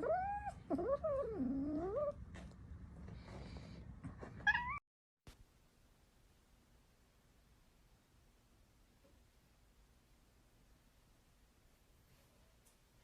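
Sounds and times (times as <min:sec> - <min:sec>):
cat meowing: 0:04.4 - 0:04.8.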